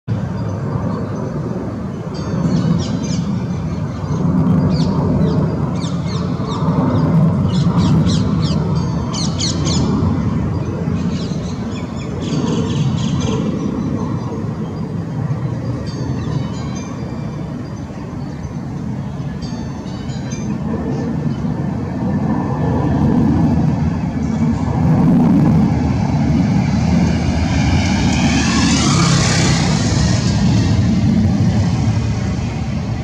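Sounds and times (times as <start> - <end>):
steady low rumble: 0.1 - 33.0
songbirds chirping: 0.2 - 22.0.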